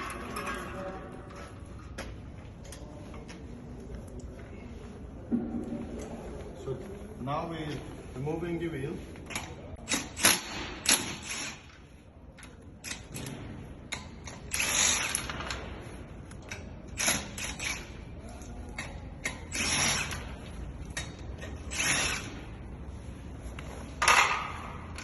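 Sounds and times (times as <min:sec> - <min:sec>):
ratchet wrench clicking: 0:09.3 - 0:11.8, 0:13.9 - 0:15.5, 0:16.4 - 0:18.0, 0:18.8 - 0:22.4.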